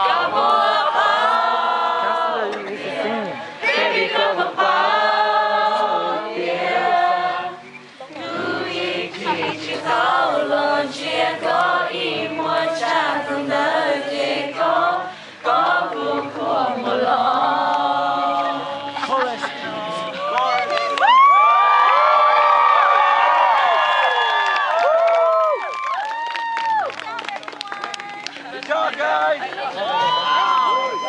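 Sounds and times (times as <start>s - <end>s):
group singing unaccompanied: 0.0s - 20.7s.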